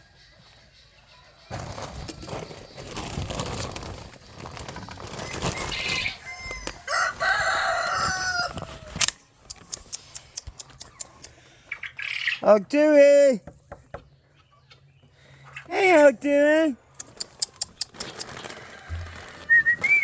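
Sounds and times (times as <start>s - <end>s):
chickens scuffling: 0.3s - 12.4s, 13.2s - 20.0s
wings flapping: 1.5s - 7.4s
rooster crowing: 5.5s - 9.0s, 18.6s - 19.5s.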